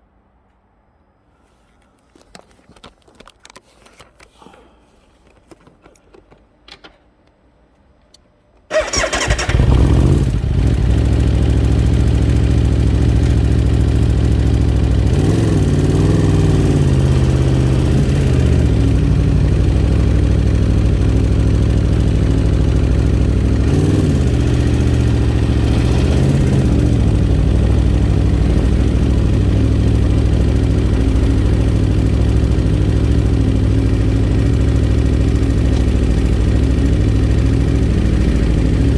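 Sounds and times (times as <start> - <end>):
motorcycle engine starting and idling: 8.1 - 38.9.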